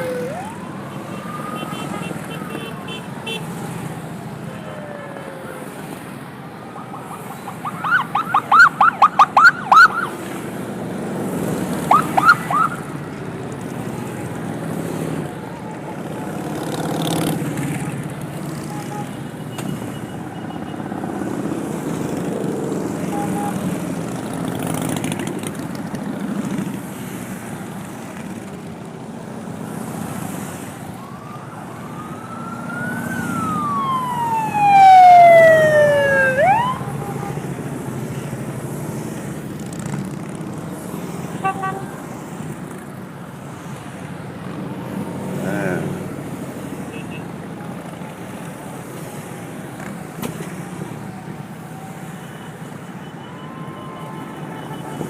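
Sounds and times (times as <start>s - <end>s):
emergency siren yelping and wailing: 0.0s - 10.4s, 11.7s - 19.2s, 29.8s - 38.6s, 44.8s - 55.0s
vehicle engines rumbling: 0.0s - 55.0s.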